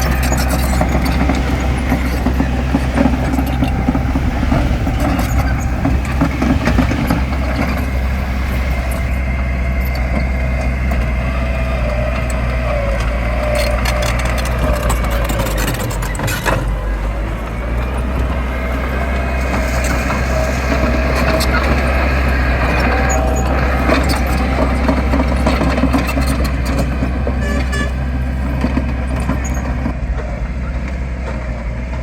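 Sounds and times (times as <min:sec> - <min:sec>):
thin whine: 0:00.0 - 0:28.6
heavy diesel engine running: 0:00.0 - 0:32.0.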